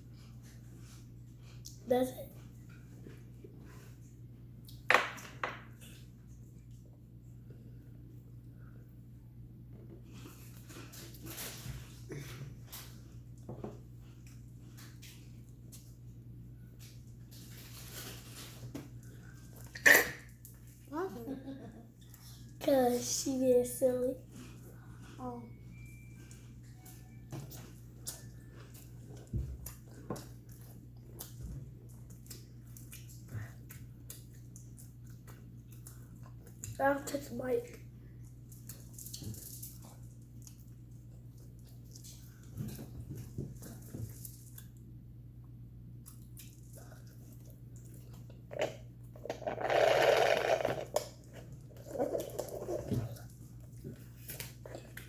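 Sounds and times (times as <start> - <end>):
chewing and mouth smacks: 27.5 - 36.8, 38.1 - 44.9, 46.0 - 49.4, 50.9 - 55.0
rough noisy eating sound: 46.0 - 55.0.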